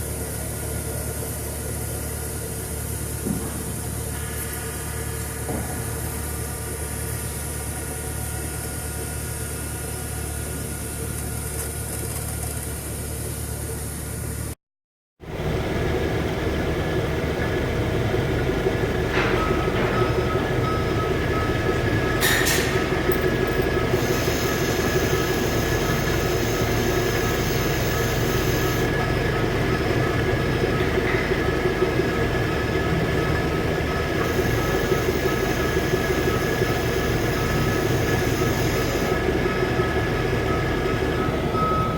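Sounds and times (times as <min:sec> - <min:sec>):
grinder machine drone: 0:15.2 - 0:41.9.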